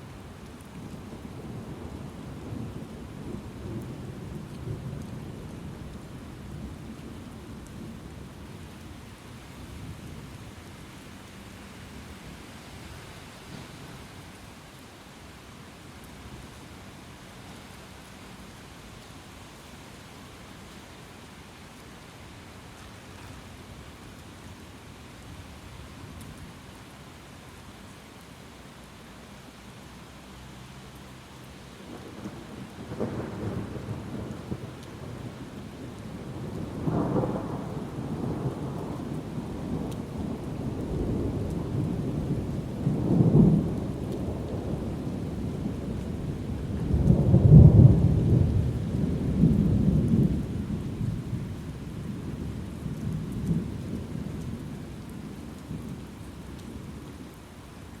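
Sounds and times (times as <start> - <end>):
steady rain: 0.0 - 58.0
rolling thunder: 31.9 - 54.6.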